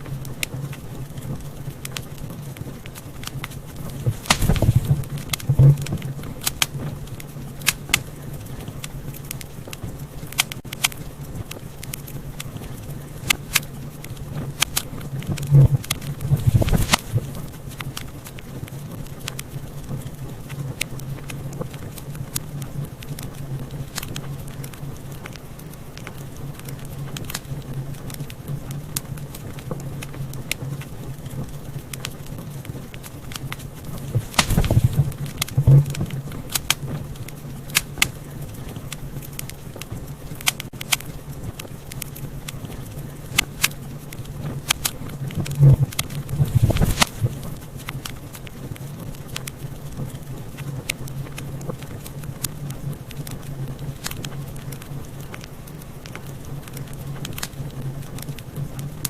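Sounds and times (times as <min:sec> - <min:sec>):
steady low hum: 0:00.0 - 0:59.0
wood fire crackling and popping: 0:00.0 - 0:59.0.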